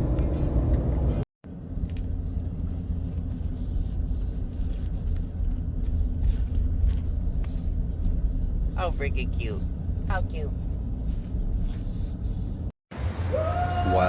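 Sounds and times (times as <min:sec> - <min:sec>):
vehicle driving on a road: 0:00.0 - 0:14.0.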